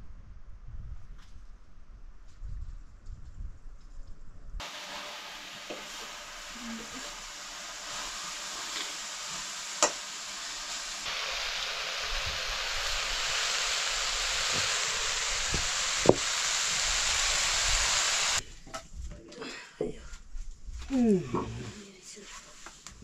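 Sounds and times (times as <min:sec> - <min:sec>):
food sizzling in hot oil: 0:04.6 - 0:18.4.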